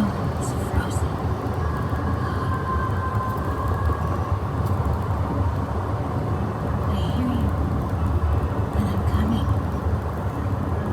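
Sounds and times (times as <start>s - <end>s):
vehicle rumble: 0.0s - 10.9s.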